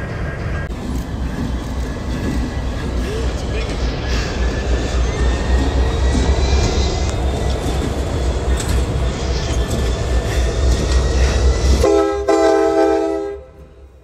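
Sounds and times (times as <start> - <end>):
diesel locomotives rumbling past: 0.0 - 14.0
train air horn blasts: 11.8 - 13.6.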